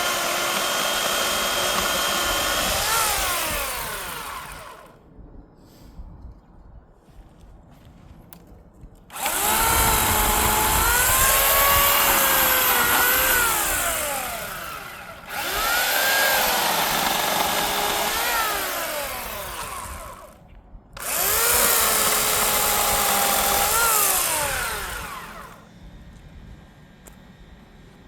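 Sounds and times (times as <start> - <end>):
electric chainsaw cutting log: 0.0 - 5.0, 9.1 - 20.4, 21.0 - 25.7.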